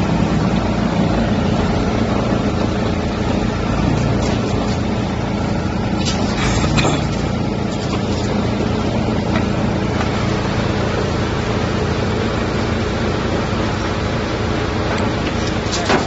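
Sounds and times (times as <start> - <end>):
wood chipper running: 0.0 - 16.0.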